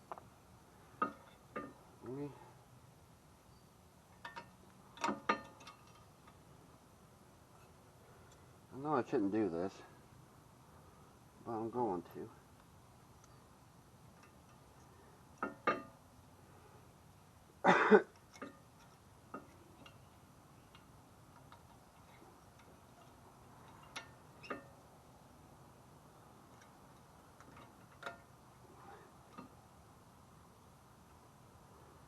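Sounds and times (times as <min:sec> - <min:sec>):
metal clicks of brake hardware: 0:26.5 - 0:28.3.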